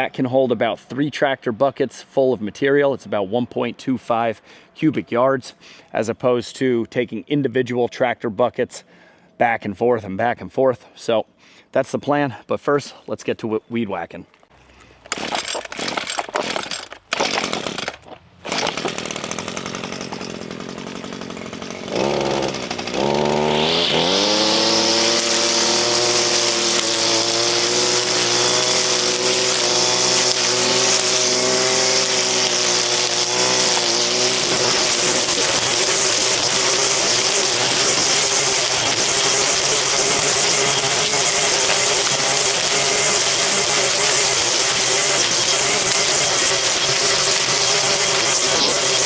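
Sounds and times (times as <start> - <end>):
string trimmer engine revving: 15.0 - 49.0.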